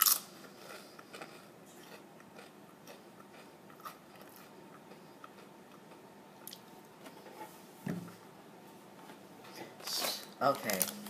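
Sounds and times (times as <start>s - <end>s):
chewing potato chip: 0.0s - 6.6s.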